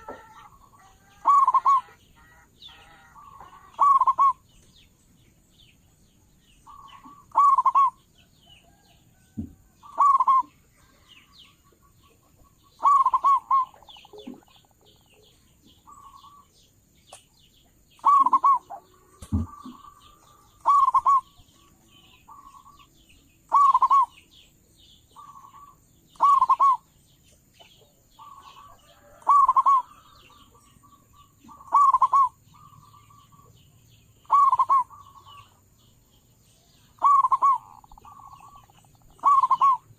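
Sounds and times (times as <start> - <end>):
dove cooing: 0.0 - 4.4, 6.7 - 8.0, 9.8 - 10.5, 12.7 - 14.8, 18.0 - 21.4, 23.5 - 24.2, 25.2 - 26.8, 28.2 - 30.2, 31.2 - 33.4, 34.2 - 35.5, 37.0 - 39.9
small birds chirping: 0.0 - 39.9.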